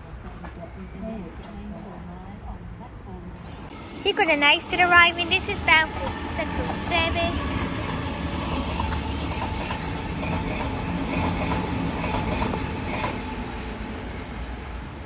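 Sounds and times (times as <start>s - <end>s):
train wheels rumbling on rail: 3.6s - 15.0s.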